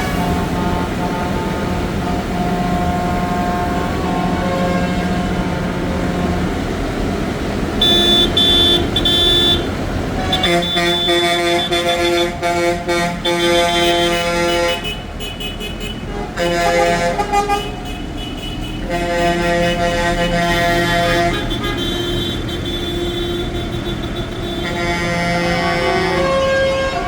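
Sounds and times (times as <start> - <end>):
tractor horns tooting: 0.0 - 6.8, 7.7 - 27.0
tractor engines running: 0.0 - 27.0.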